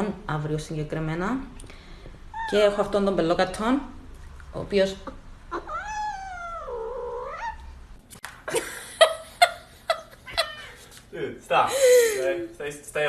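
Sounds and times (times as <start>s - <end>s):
cat meowing: 5.5s - 7.8s, 10.2s - 10.8s.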